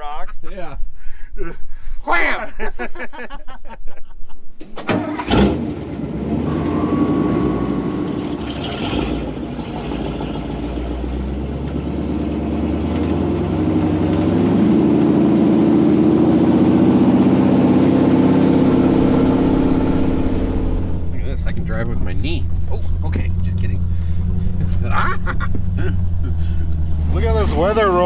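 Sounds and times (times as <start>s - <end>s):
vehicle engine running: 5.6s - 28.0s.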